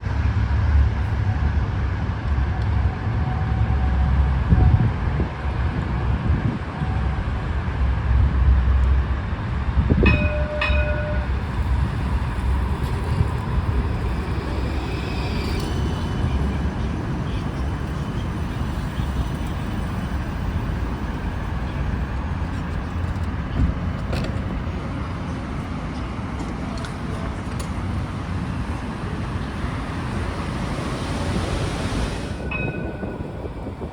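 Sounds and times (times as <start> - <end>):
streetcar rumbling on track: 0.0 - 33.9
sharp clack with ringing tone: 10.1 - 11.3.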